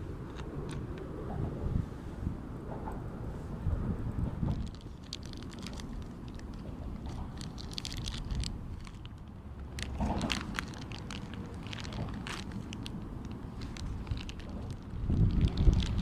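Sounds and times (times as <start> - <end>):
wind rumble on microphone: 0.0 - 16.0
small crunching clicks: 4.4 - 16.0.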